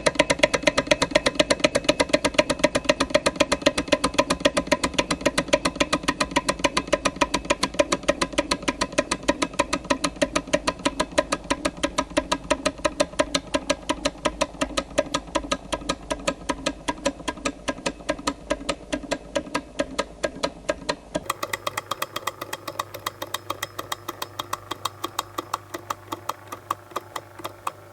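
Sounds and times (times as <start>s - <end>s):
engine mechanical clicking: 21.2s - 27.9s.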